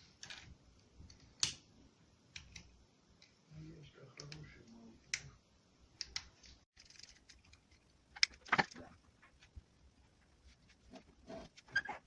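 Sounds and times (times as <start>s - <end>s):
small plastic parts clicking: 6.0s - 8.8s.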